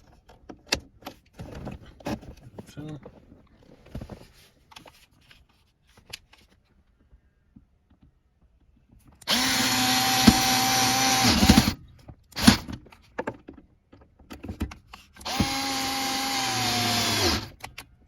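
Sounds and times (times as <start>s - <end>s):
power drill motor whine: 9.2s - 11.8s, 12.4s - 12.7s, 15.2s - 17.6s
drill clicks: 9.2s - 12.8s, 15.2s - 17.9s.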